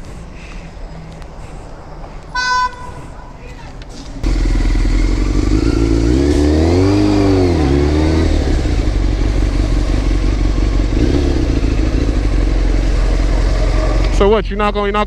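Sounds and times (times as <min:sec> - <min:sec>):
motorcycle engine running: 0:04.2 - 0:15.0.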